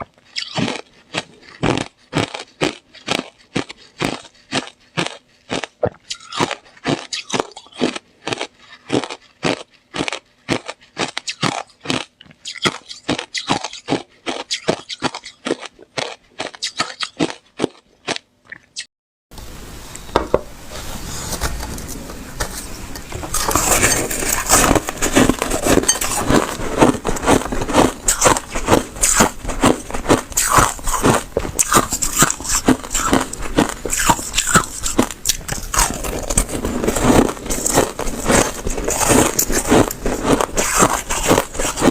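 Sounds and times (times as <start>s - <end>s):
ice being bitten and chewed: 0.0s - 18.8s, 23.1s - 41.9s
steady hiss: 19.4s - 23.0s.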